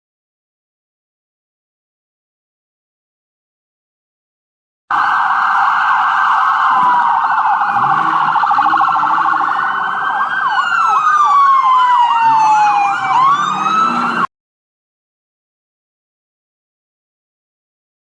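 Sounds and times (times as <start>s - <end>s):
emergency vehicle siren: 4.9s - 14.3s.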